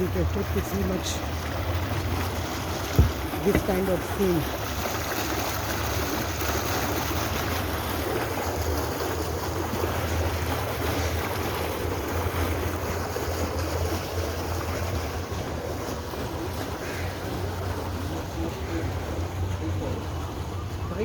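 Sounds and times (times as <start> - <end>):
wind buffeting microphone: 0.0 - 4.5.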